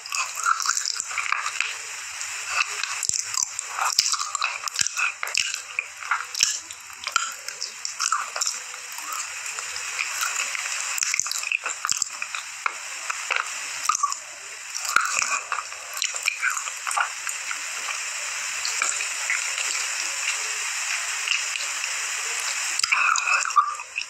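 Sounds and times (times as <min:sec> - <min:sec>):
wet chewing and squishing: 0:00.0 - 0:01.8, 0:02.5 - 0:18.0, 0:18.6 - 0:21.7, 0:22.5 - 0:24.0
tongue and lip smacks: 0:02.5 - 0:09.2.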